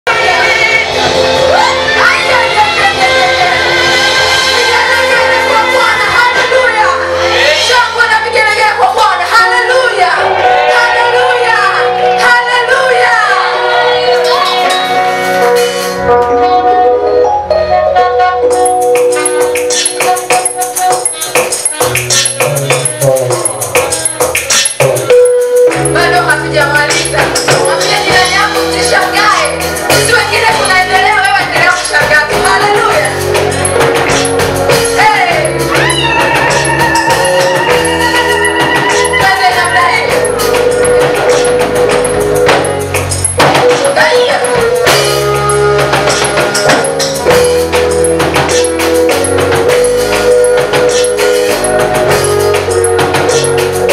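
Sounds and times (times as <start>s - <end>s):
gospel song with band: 0.0s - 53.9s
voices singing: 0.1s - 8.3s, 25.7s - 42.8s
instrumental music: 0.1s - 53.9s.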